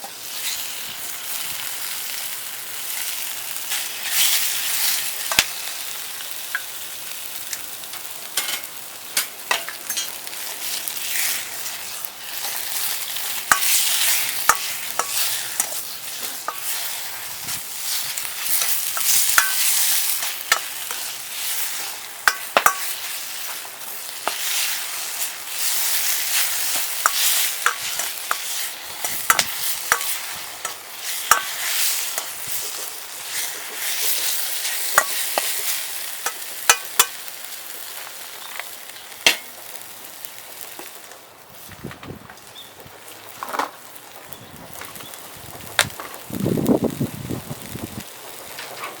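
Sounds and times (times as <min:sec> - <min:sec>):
food sizzling in wok: 0:00.0 - 0:49.0
spatula scraping metal pan: 0:12.3 - 0:17.2.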